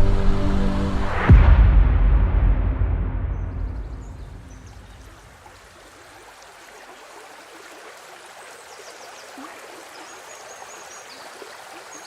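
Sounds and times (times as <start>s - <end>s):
stream water rushing: 4.2s - 12.0s.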